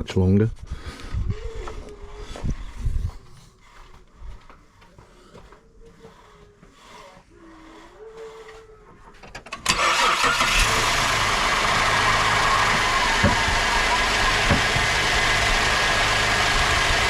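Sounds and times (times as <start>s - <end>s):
car engine cranking: 9.3s - 17.0s
car engine idling: 9.6s - 17.0s.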